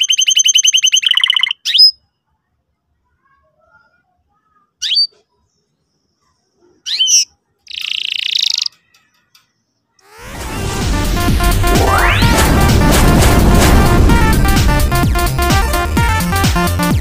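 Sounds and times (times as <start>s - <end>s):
canary chirping and trilling: 0.0s - 2.4s, 3.7s - 10.3s.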